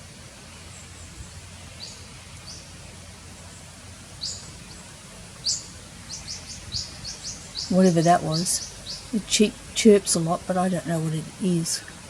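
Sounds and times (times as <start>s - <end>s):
small bird chirping: 0.7s - 2.7s, 3.4s - 9.5s.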